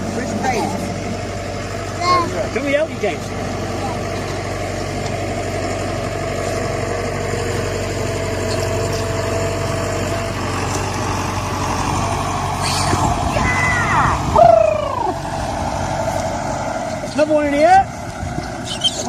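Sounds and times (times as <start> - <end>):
vehicle engine idling: 0.0 - 19.0
high squeaks: 12.6 - 13.8, 18.6 - 19.0.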